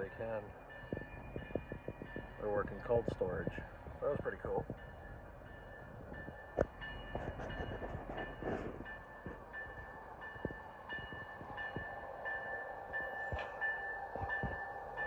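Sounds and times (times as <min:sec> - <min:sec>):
freight train rolling past: 0:00.0 - 0:15.0
high ringing tone: 0:04.8 - 0:15.0
sharp clicks from train wheels: 0:06.2 - 0:15.0.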